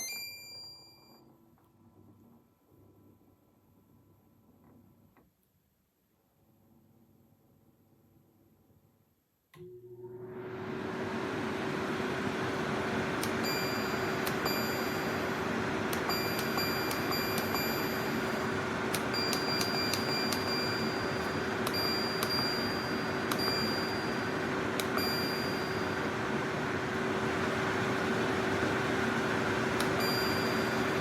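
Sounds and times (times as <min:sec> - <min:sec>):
machine hum: 0:10.0 - 0:31.0.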